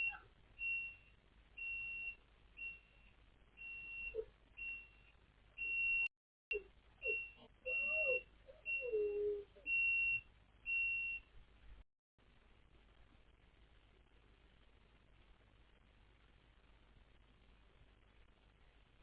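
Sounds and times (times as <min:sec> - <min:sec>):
massage chair warning beep: 0:00.0 - 0:11.3
dog calling: 0:06.5 - 0:09.8.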